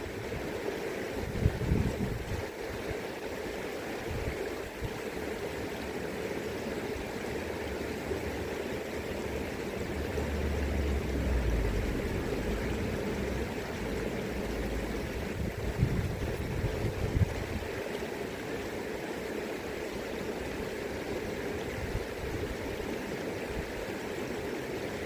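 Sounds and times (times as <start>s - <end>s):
river current flowing: 0.0s - 25.0s
wind buffeting microphone: 1.2s - 2.5s, 10.8s - 17.9s.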